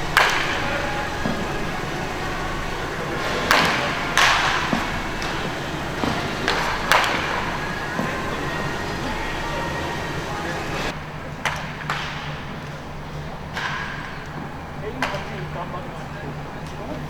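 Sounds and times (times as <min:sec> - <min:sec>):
baseballs being struck or caught: 0:00.0 - 0:10.9.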